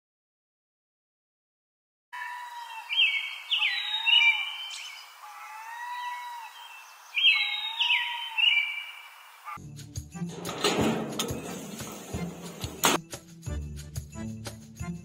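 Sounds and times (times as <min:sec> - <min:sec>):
soft gliding bird whistles: 0:06.6 - 0:09.6.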